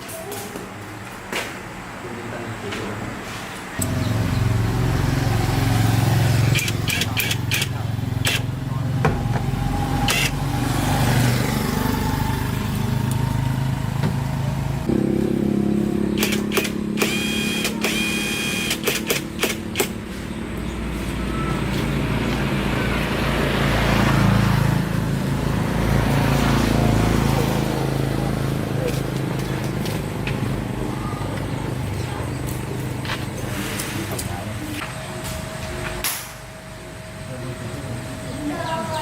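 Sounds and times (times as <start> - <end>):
vehicle engine running: 3.8 - 39.0
sharp clicks: 6.5 - 8.5, 16.2 - 20.0.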